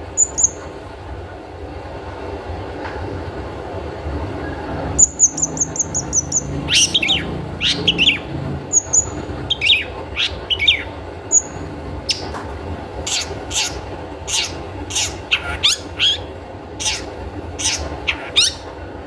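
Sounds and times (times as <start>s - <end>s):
shrike calling: 0.0s - 0.7s, 5.0s - 12.4s, 13.0s - 18.8s
steady low hum: 0.0s - 19.0s.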